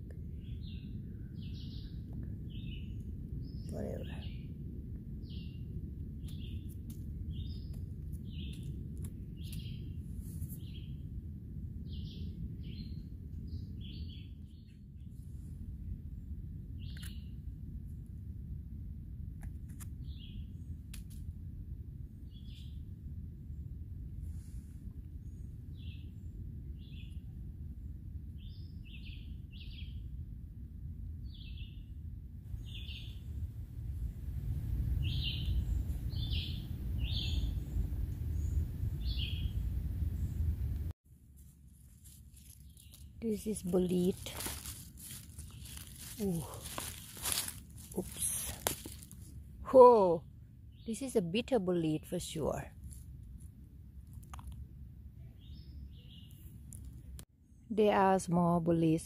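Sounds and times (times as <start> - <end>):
steady low rumble: 0.0 - 57.7
small birds chirping: 0.3 - 4.6, 5.2 - 11.0, 16.8 - 17.4, 32.5 - 33.4, 35.0 - 40.6, 42.0 - 52.7, 55.2 - 57.7.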